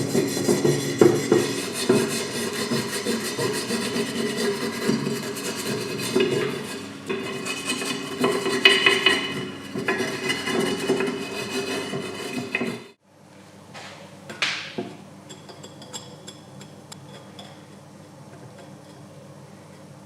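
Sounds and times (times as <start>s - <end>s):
scraping and rubbing metal parts: 0.0s - 13.0s.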